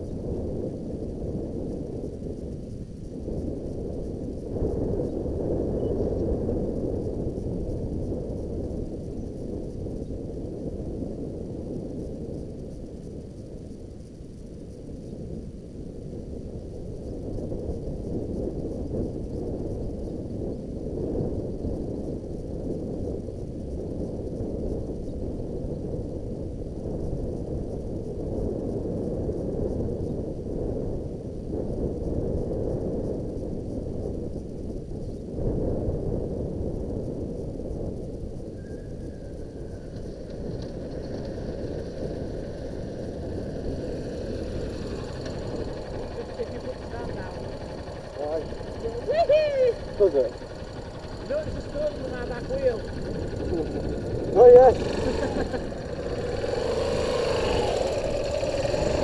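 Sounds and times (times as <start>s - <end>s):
wind buffeting microphone: 0.0s - 59.0s
motorcycle engine running: 37.0s - 59.0s.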